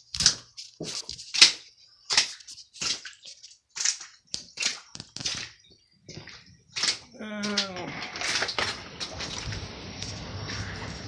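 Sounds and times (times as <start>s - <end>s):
footsteps splashing through water: 0.0s - 11.0s.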